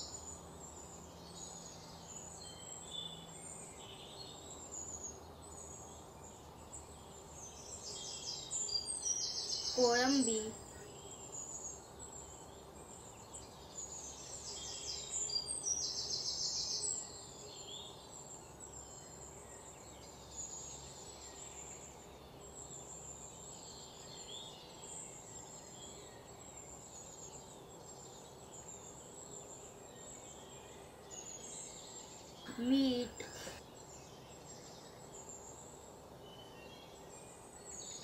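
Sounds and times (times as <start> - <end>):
birds chirping and calling: 0.0 - 19.7
low steady hiss: 0.0 - 38.0.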